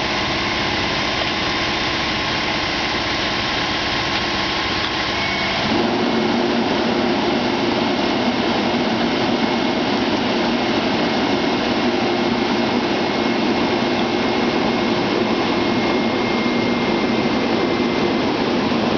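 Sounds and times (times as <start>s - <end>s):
heavy truck engine running: 0.0s - 18.9s
thin high whine: 9.0s - 18.9s.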